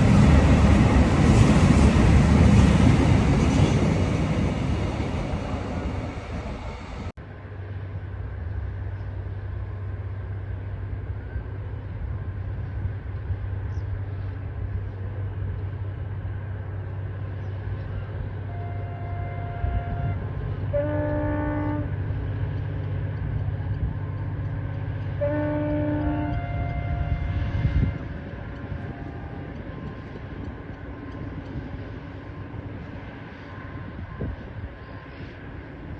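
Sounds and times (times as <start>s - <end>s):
diesel locomotive droning: 0.0s - 35.9s
locomotive horn: 18.4s - 22.0s, 25.2s - 28.0s.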